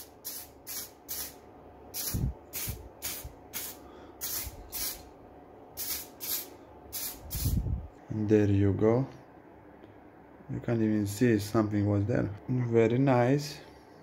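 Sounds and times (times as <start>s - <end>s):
spray paint can hissing: 0.0s - 5.1s, 5.8s - 7.6s.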